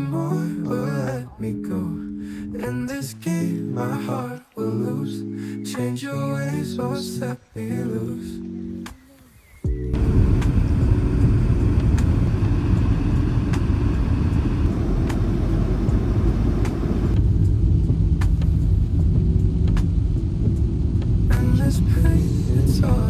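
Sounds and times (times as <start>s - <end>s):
car interior road rumble: 10.0s - 17.2s, 19.5s - 23.0s
faint clicks: 10.0s - 17.2s.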